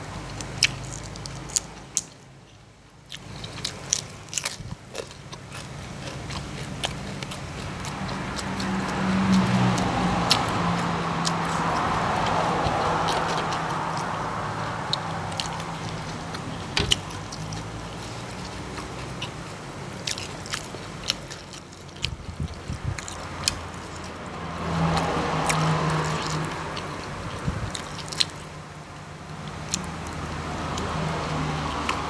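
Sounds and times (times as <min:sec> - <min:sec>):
chewing and biting food: 0:00.0 - 0:02.1, 0:03.0 - 0:32.0.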